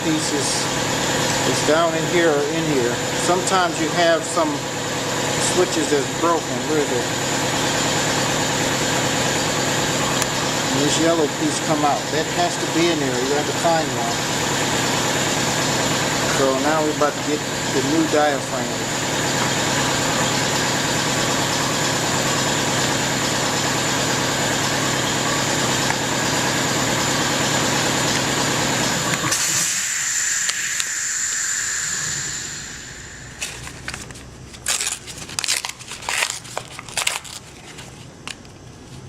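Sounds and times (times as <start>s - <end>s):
machine whining: 0.0s - 38.5s.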